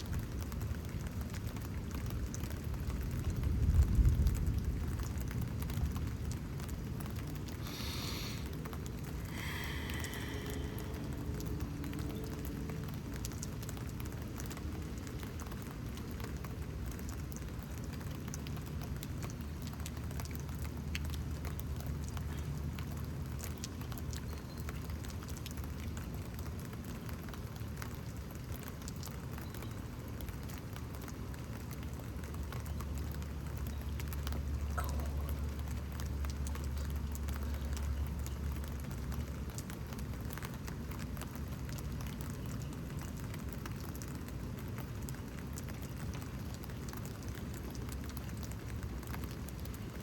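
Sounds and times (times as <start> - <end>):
raindrops pattering close: 0.0 - 50.0
steady low rumble: 3.5 - 13.1.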